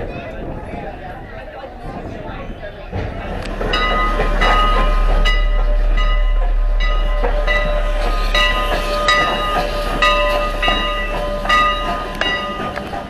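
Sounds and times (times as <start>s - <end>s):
low locomotive rumble: 0.0s - 13.0s
locomotive bell ringing: 2.9s - 13.0s.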